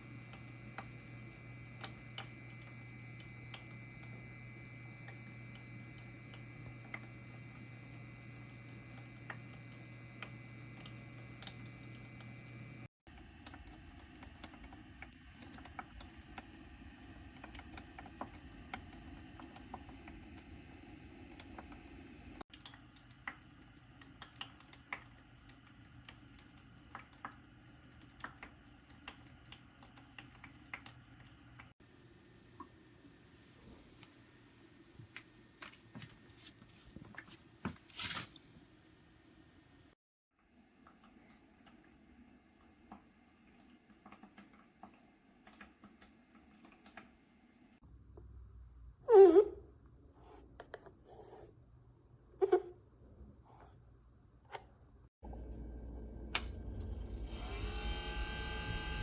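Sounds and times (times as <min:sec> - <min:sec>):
humidifier low hum: 0:00.0 - 0:39.9, 0:55.2 - 0:59.0.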